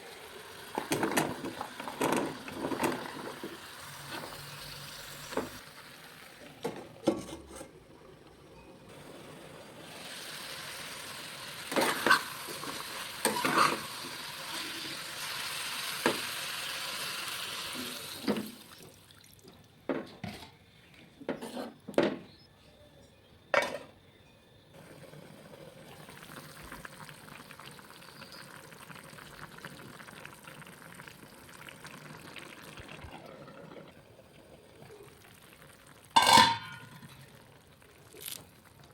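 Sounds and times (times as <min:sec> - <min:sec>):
food sizzling in a pan: 0:00.0 - 0:06.6, 0:08.9 - 0:18.8, 0:24.8 - 0:33.8
spoon scraping a pan: 0:13.2 - 0:14.6, 0:36.2 - 0:37.0.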